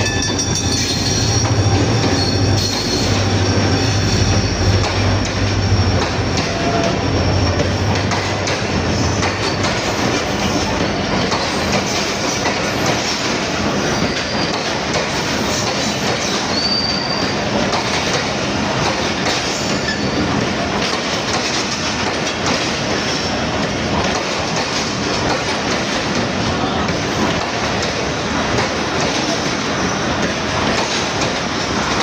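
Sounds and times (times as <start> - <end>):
high wheel squeal: 0.0 - 8.4, 15.6 - 17.4
train wheels on rails: 0.0 - 32.0.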